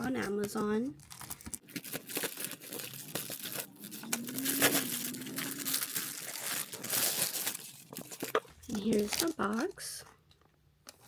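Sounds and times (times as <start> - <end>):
package crinkling and tearing: 0.0 - 11.0.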